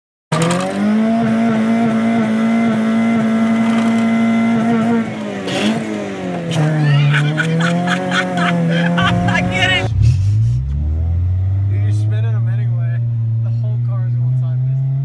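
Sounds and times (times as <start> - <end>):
car engine revving high: 0.3 - 15.0.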